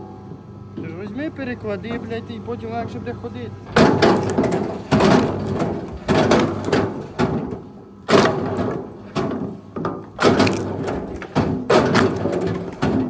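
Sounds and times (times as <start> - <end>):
wooden logs knocking together: 3.7 - 13.0.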